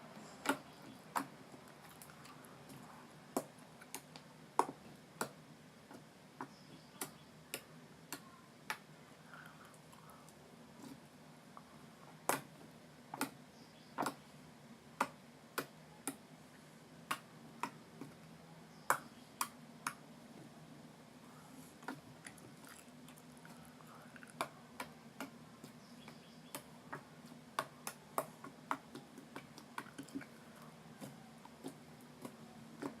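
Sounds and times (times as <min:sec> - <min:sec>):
faint low hum: 0:00.0 - 0:33.0.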